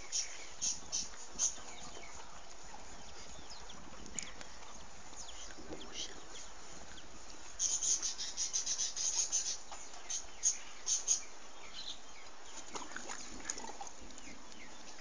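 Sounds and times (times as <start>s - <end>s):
small birds chirping: 0.0s - 15.0s
steady background hiss: 0.0s - 15.0s.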